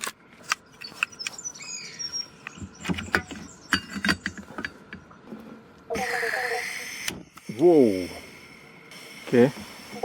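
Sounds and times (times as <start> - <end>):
bird chirping: 0.6 - 4.3.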